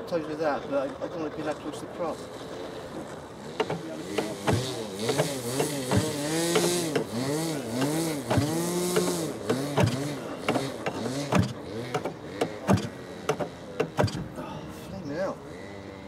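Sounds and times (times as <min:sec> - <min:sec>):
electric starter whirring: 0:02.4 - 0:16.0
starter click: 0:03.6 - 0:07.2, 0:07.8 - 0:14.3.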